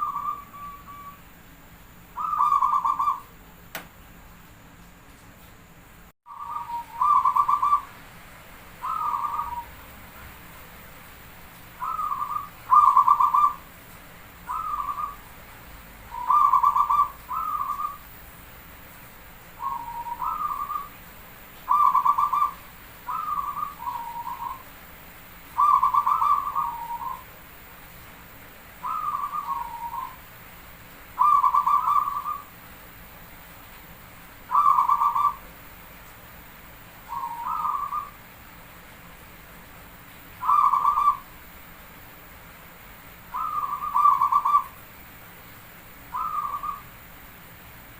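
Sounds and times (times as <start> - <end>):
dove cooing: 0.0 - 1.2, 2.2 - 3.3, 6.3 - 8.0, 8.8 - 9.8, 11.8 - 13.6, 14.5 - 15.2, 16.1 - 18.0, 19.6 - 20.9, 21.6 - 24.6, 25.6 - 27.3, 28.8 - 30.2, 31.2 - 32.5, 34.5 - 35.4, 37.1 - 38.2, 40.4 - 41.3, 43.3 - 44.8, 46.1 - 46.8.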